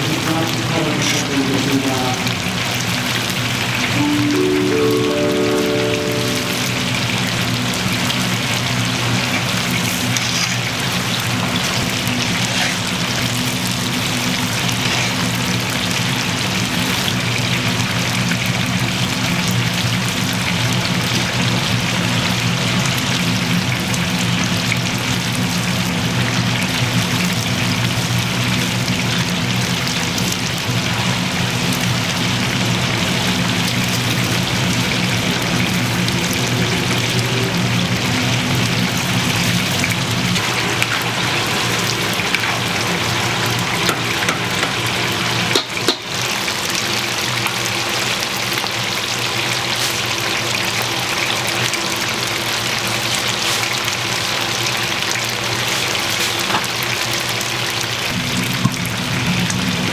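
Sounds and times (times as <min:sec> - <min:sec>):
food deep-frying in oil: 0:00.0 - 0:59.9.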